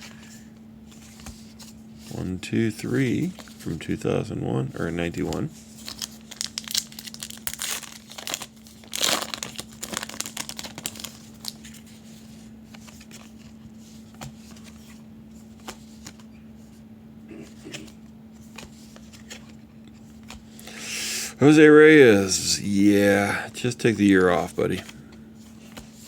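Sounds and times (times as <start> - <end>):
faint steady hum: 0.0 - 26.0
wrapper crinkling and tearing: 5.8 - 11.8.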